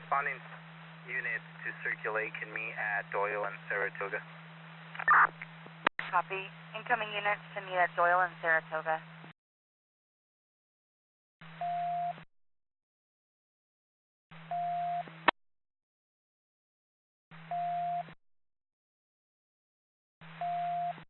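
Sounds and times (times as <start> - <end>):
radio static and hum: 0.0 - 4.3, 4.9 - 9.0
radio scanner beep: 5.0 - 5.4.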